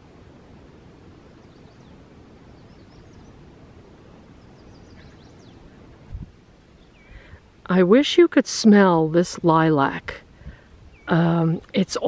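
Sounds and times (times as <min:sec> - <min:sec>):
steady low hiss: 0:00.0 - 0:12.0
faint bird chirps: 0:01.2 - 0:07.4, 0:10.8 - 0:11.6.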